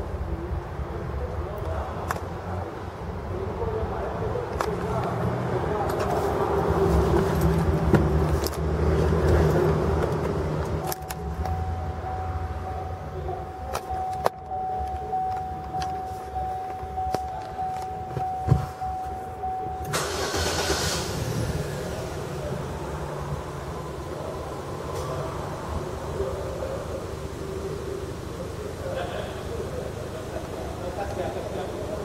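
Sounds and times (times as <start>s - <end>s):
car engine idling: 0.0s - 32.0s
steady high tone: 10.7s - 21.1s.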